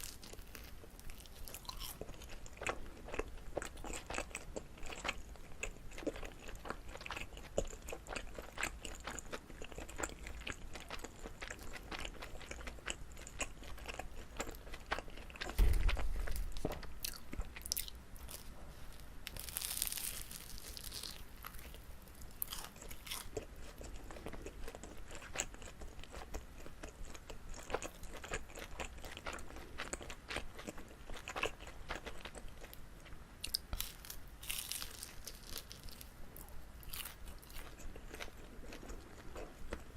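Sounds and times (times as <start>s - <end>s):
chewing sticky rice cake: 0.0s - 39.9s
loud low thump: 15.5s - 16.9s.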